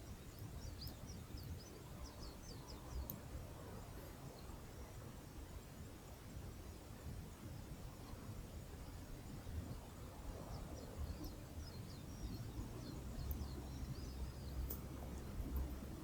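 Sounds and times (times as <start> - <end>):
low rumble of wind or surf: 0.0 - 16.0
small bird chirping: 10.5 - 16.0.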